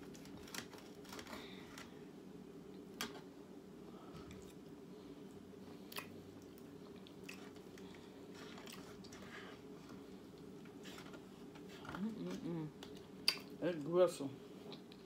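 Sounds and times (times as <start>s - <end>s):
low background hum: 0.0s - 15.0s
chewing steak: 5.3s - 10.8s.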